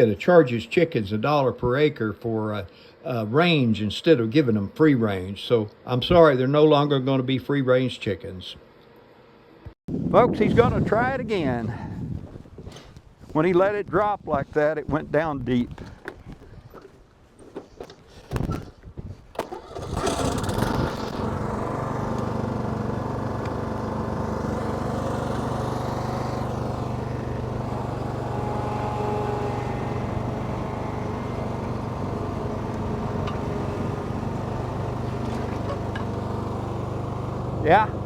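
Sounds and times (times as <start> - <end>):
lawn mower engine running: 19.4 - 38.0
engine knocks: 24.6 - 38.0.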